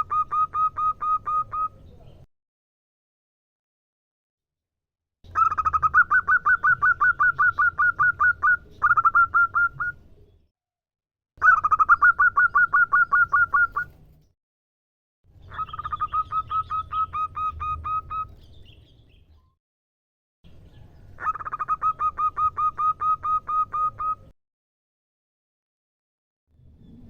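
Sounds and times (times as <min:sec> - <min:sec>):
dove calling: 0:00.0 - 0:01.9, 0:05.3 - 0:10.0, 0:11.4 - 0:14.0, 0:15.4 - 0:18.9, 0:21.1 - 0:24.3.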